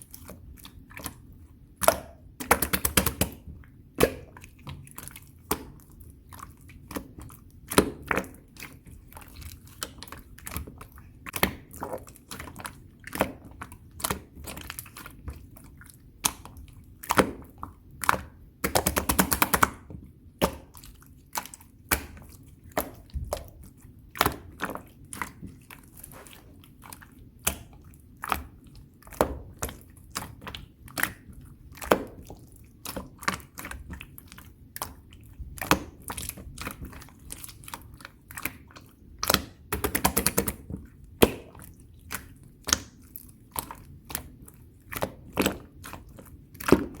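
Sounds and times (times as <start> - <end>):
slime rapid crackling: 17.0 - 19.8.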